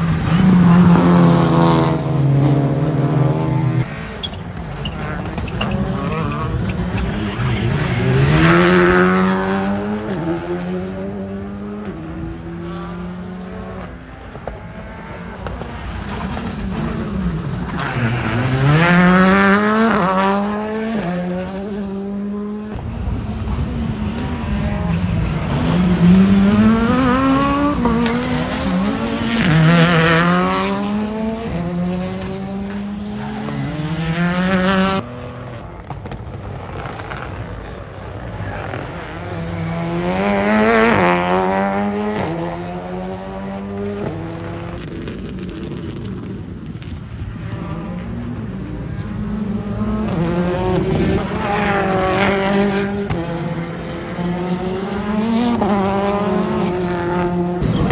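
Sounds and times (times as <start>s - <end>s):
rally car engines passing: 0.0s - 57.9s
tyre squeal: 4.1s - 8.9s, 15.6s - 20.1s, 32.2s - 34.4s, 57.4s - 57.9s.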